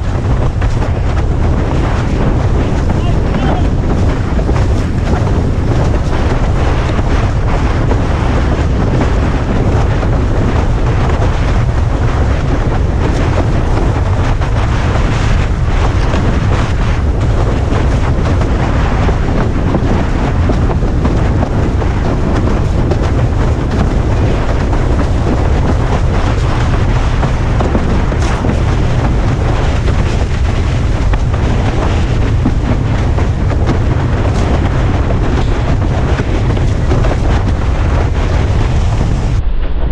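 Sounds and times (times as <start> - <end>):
water rushing under board: 0.0 - 39.9
wind buffeting microphone: 0.0 - 39.9.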